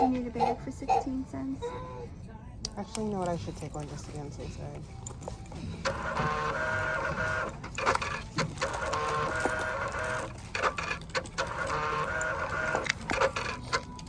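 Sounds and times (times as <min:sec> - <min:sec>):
receipt printer buzzing: 0:04.9 - 0:14.0.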